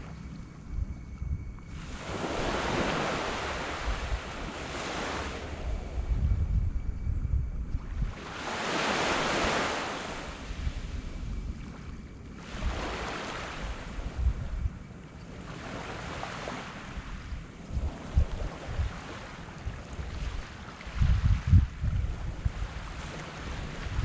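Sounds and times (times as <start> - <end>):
wind rumble on microphone: 0.0 - 24.0
small waves washing up beach: 1.7 - 6.0, 8.2 - 11.0, 12.4 - 14.1, 15.4 - 17.0, 22.4 - 24.0.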